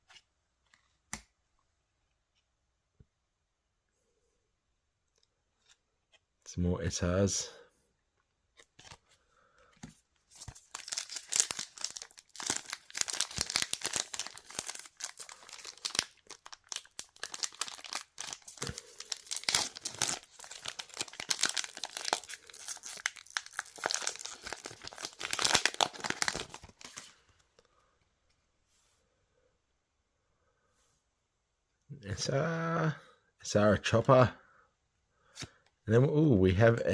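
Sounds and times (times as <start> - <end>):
wrapper tearing and crinkling: 10.4 - 27.1.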